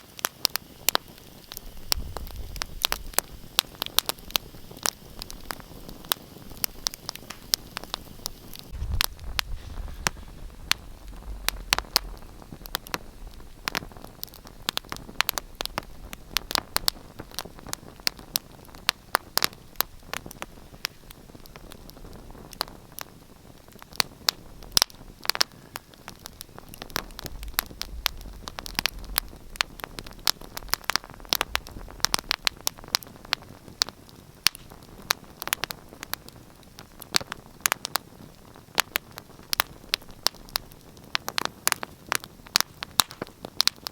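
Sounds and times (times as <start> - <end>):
wood fire crackling: 0.0 - 43.9
low rumble: 8.7 - 17.2.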